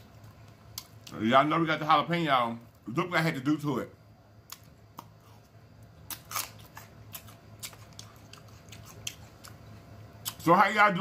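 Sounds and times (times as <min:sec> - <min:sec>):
crunching chewing of pepper: 0:04.5 - 0:10.6.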